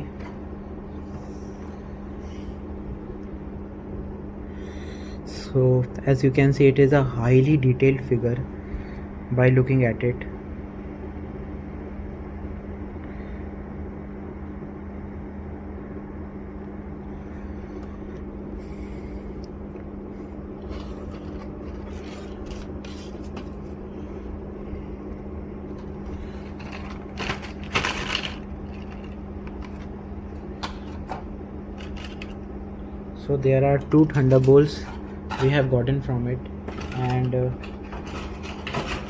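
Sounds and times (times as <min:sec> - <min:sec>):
steady low hum: 0:00.0 - 0:39.0
plastic packaging rustling: 0:20.6 - 0:23.9, 0:25.8 - 0:30.0, 0:31.8 - 0:32.4.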